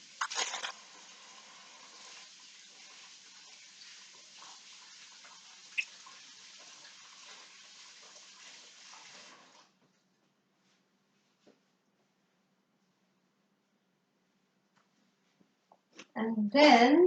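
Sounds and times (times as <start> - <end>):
tap water running: 0.0 - 9.8.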